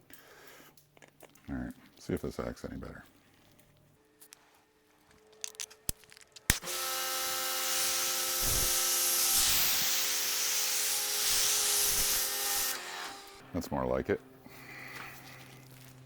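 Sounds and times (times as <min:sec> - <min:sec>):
pressure washer spraying hiss: 0:06.6 - 0:12.8.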